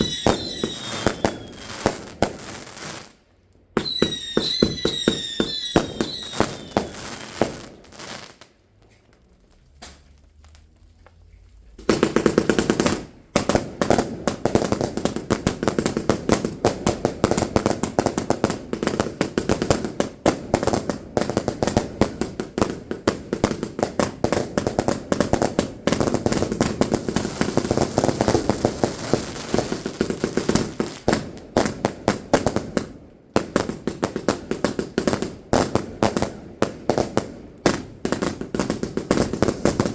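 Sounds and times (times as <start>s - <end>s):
fireworks bangs and crackles: 0.0s - 10.7s, 11.7s - 39.9s.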